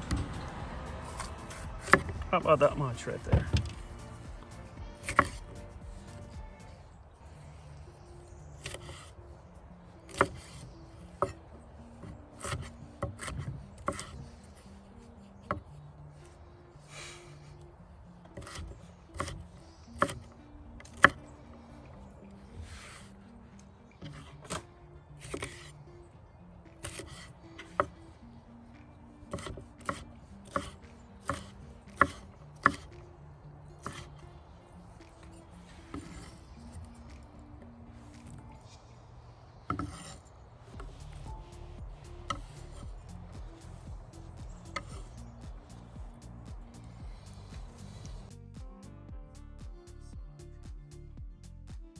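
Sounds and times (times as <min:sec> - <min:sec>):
knife scraping board: 0:01.0 - 0:02.2, 0:05.0 - 0:06.2, 0:12.4 - 0:14.2, 0:18.4 - 0:19.4, 0:25.2 - 0:25.7, 0:26.8 - 0:27.9, 0:33.8 - 0:34.1, 0:39.7 - 0:40.2
knife chopping on cutting board: 0:01.1 - 0:02.4, 0:05.0 - 0:05.6, 0:12.4 - 0:14.2, 0:18.4 - 0:19.4, 0:29.3 - 0:32.9.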